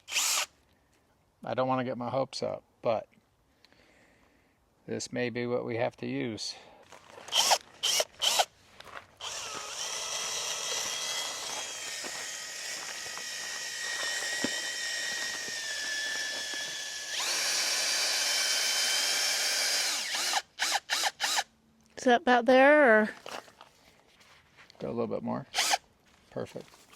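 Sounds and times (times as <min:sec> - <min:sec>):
cordless drill whining: 0:00.0 - 0:00.5, 0:07.2 - 0:08.5, 0:09.2 - 0:21.5, 0:25.5 - 0:25.8
drill trigger blips: 0:00.0 - 0:00.5, 0:07.3 - 0:08.5, 0:09.2 - 0:21.5, 0:25.6 - 0:25.8.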